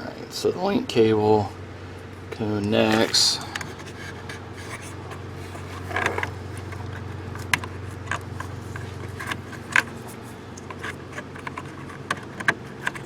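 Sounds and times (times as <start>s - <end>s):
steady low hum: 0.0s - 13.0s
cable and plastic fittings clicking: 5.8s - 13.0s.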